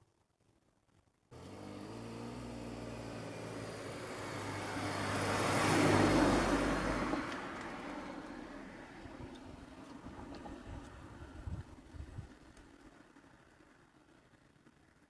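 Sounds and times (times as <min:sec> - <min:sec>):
car driving past: 0:01.4 - 0:11.6.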